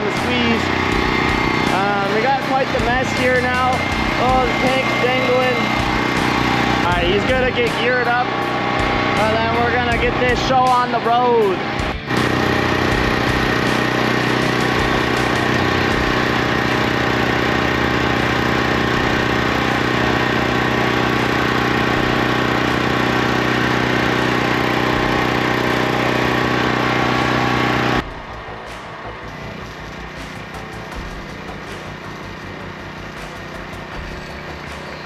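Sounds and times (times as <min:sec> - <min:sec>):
machine humming: 0:00.0 - 0:35.0.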